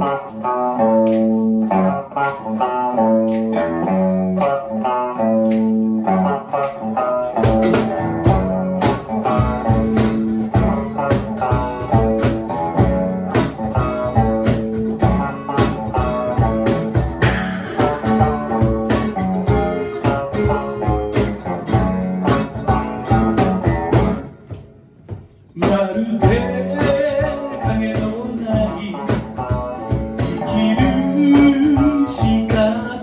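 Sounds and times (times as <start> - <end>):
bass guitar: 0.0 - 33.0
drums: 0.0 - 33.0
guitar riff: 0.0 - 33.0.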